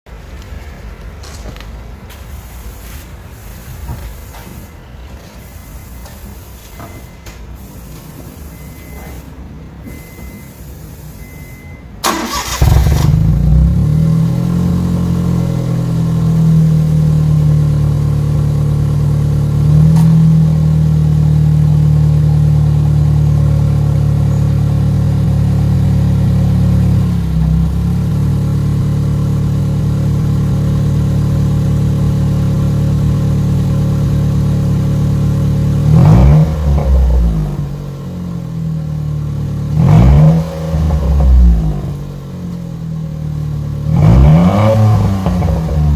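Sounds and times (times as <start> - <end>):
engine revving: 12.0 - 15.6, 35.8 - 37.7, 39.7 - 42.0, 43.8 - 45.9.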